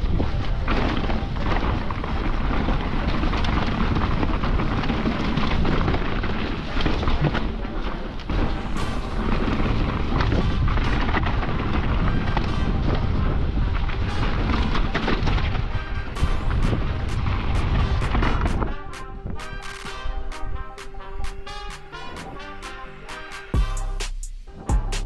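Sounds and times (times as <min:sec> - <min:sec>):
bike knocks and rattles: 0:00.0 - 0:19.6
wind buffeting microphone: 0:00.0 - 0:23.2
bike tyre rumble on dirt: 0:00.0 - 0:25.0.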